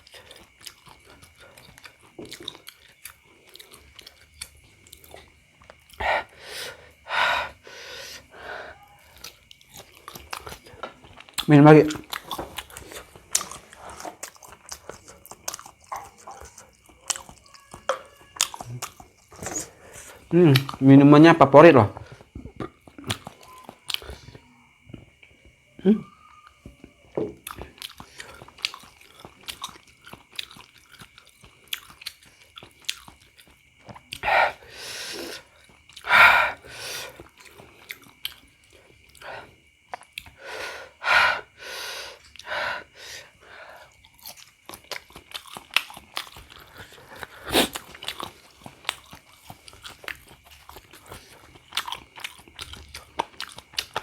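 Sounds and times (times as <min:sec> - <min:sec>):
close chewing with wet mouth clicks: 0:00.0 - 0:07.0, 0:09.0 - 0:20.9, 0:22.0 - 0:25.6, 0:26.4 - 0:40.4, 0:42.2 - 0:54.0
faint steady high tone: 0:23.1 - 0:27.6.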